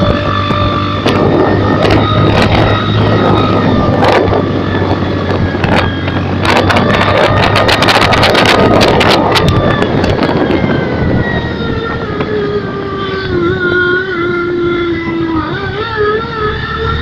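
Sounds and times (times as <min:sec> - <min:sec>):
motorcycle engine running: 0:00.0 - 0:17.0
crackling exhaust pops: 0:05.3 - 0:10.6.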